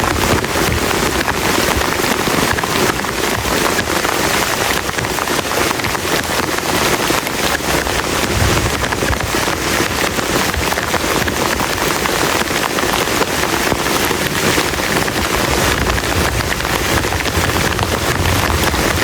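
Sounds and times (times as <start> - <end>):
heavy rain on plastic tarp: 0.0 - 19.0.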